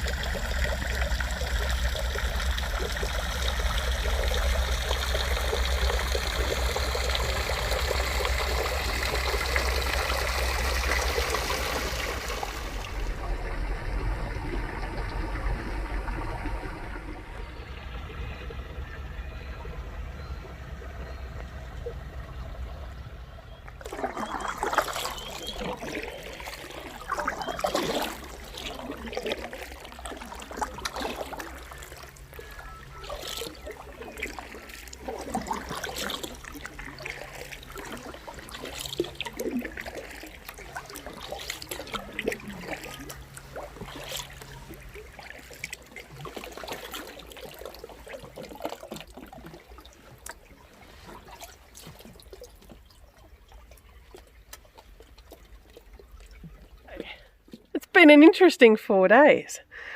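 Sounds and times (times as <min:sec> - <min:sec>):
paddle strokes in water: 0:00.0 - 0:57.8
faint low hum: 0:00.0 - 0:58.4
water dripping off paddle: 0:23.6 - 0:57.8.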